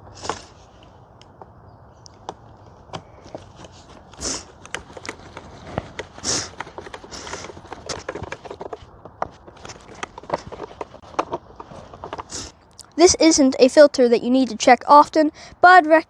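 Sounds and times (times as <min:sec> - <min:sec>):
plastic scraping: 0:02.1 - 0:12.6.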